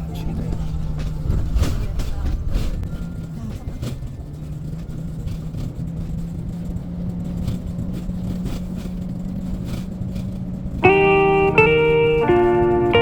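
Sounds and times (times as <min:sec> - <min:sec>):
car engine droning: 0:00.0 - 0:13.0
plucked guitar music: 0:10.8 - 0:13.0.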